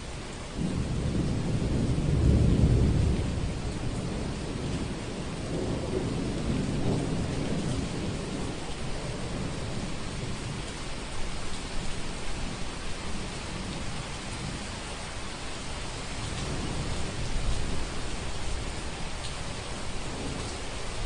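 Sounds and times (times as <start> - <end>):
steady rain: 0.0 - 21.0
rolling thunder: 0.6 - 10.7, 16.1 - 21.0.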